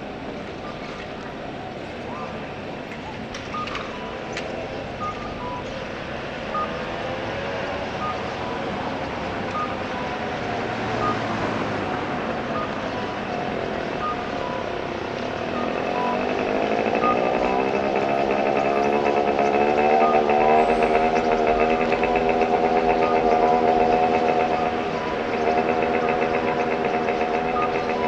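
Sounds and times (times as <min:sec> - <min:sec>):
road traffic noise: 0:00.0 - 0:28.0
vehicle engine running: 0:04.2 - 0:28.0.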